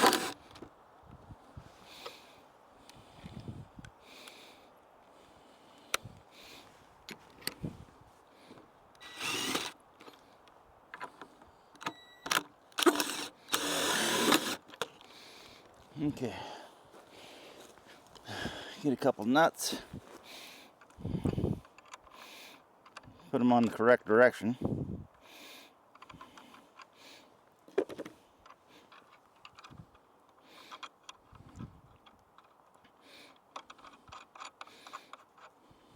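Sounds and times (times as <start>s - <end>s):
power tool running: 0.0s - 0.4s, 9.0s - 9.8s, 12.8s - 14.6s.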